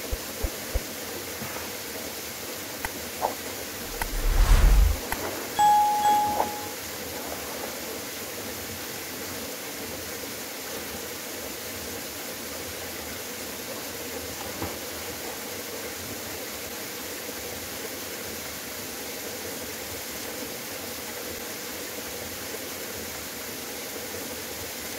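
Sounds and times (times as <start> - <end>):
short loud tone: 3.9 - 5.0, 5.6 - 6.8.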